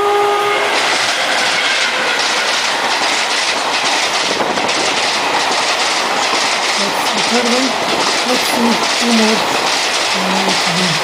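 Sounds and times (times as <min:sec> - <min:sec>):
horn-like tone: 0:00.0 - 0:01.2
model train wheels rattling: 0:00.8 - 0:11.0.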